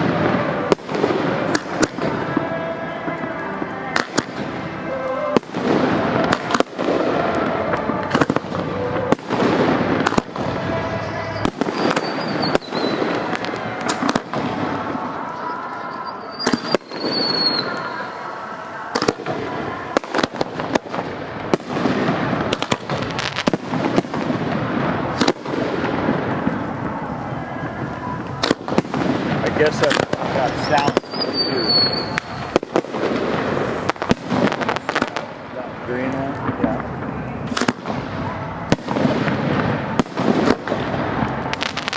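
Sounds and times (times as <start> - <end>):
music playing: 0.0 - 38.9
fireworks bursts and bangs: 0.0 - 41.9
high firework whistle: 3.9 - 24.4, 25.1 - 35.3.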